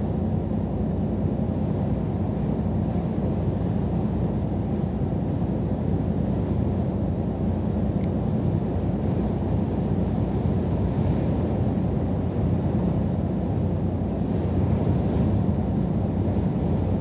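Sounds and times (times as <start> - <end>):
truck diesel engine drone: 0.0 - 17.0.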